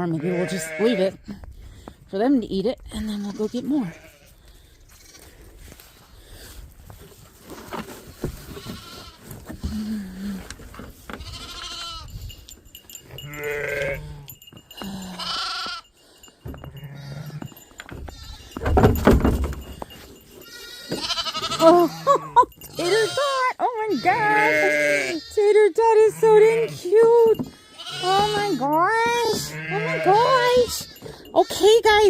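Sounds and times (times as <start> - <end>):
sheep and lambs bleating: 0.0 - 1.4, 3.0 - 5.9, 8.3 - 10.4, 11.0 - 12.2, 13.1 - 15.9, 16.6 - 18.9, 20.4 - 32.0.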